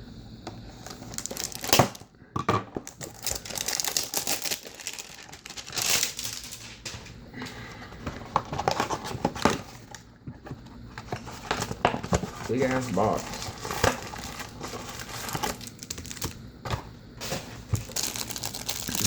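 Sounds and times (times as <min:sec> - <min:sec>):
plastic ripping: 0:00.8 - 0:02.0, 0:02.9 - 0:07.1, 0:11.5 - 0:16.4, 0:17.8 - 0:19.0
plastic wrapping crinkling: 0:00.8 - 0:02.0, 0:02.8 - 0:10.1, 0:11.1 - 0:16.4, 0:17.2 - 0:19.0.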